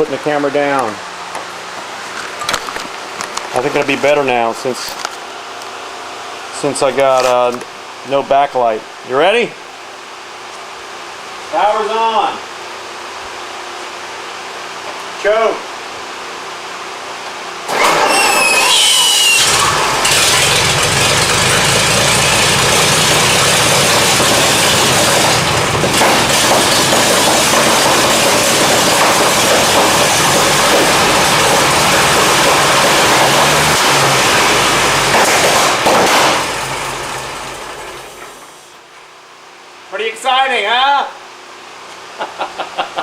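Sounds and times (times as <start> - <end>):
rising whine: 17.6 - 38.4
engine cranking and running: 17.7 - 38.4.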